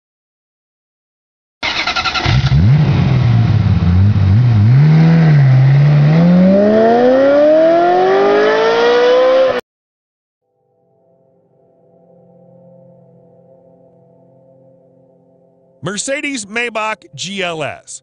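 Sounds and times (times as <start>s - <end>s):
car engine revving: 1.7s - 9.6s.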